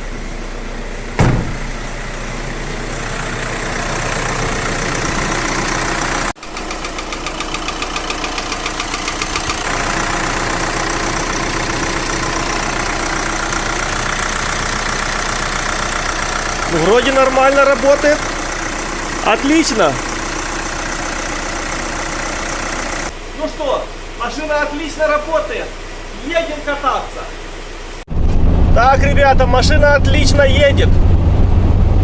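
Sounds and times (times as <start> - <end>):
diesel engine idling: 0.0 - 23.3.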